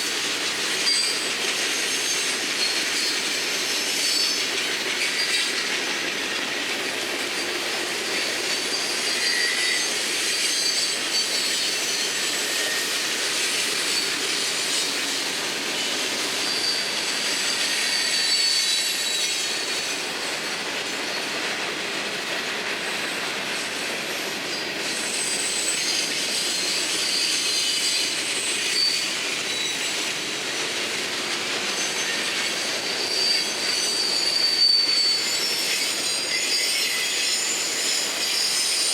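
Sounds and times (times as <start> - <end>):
high-pitched wheel squeal: 8.5 - 13.1, 16.4 - 19.9, 25.0 - 30.0, 31.7 - 38.9.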